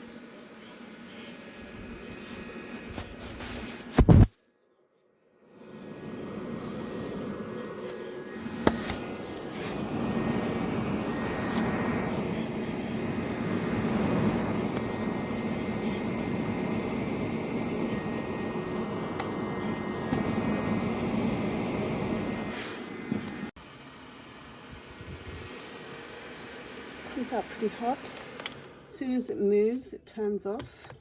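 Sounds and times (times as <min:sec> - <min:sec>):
space heater fan humming: 0:00.0 - 0:04.3, 0:05.4 - 0:31.0
heater sharp click: 0:07.7 - 0:23.5, 0:28.1 - 0:28.8.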